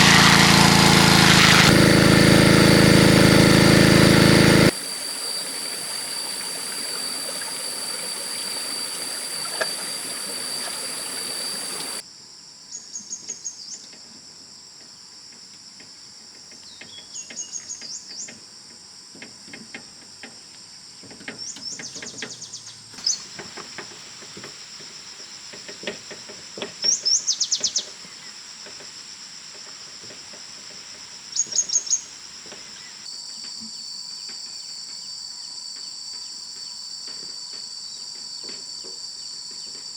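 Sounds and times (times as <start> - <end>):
high-pitched insect drone: 1.4 - 12.0, 26.9 - 39.9
bird trilled calls: 4.9 - 12.0.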